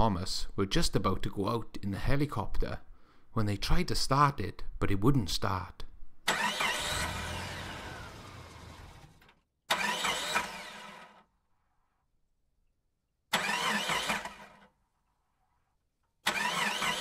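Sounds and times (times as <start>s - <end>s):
engine cranking: 6.3s - 11.2s, 13.3s - 14.7s, 16.2s - 17.0s.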